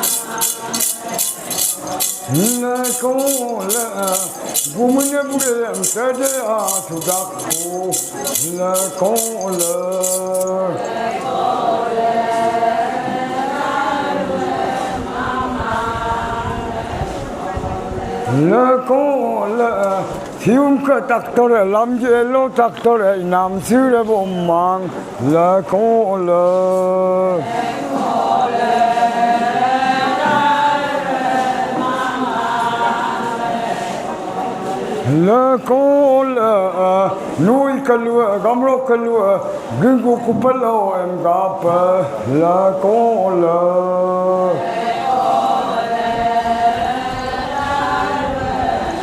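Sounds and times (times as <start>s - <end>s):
shaken rattle: 0.0s - 11.0s
lead voice singing: 0.0s - 17.0s
group chanting in unison: 10.5s - 19.5s, 27.3s - 35.4s, 41.6s - 49.0s.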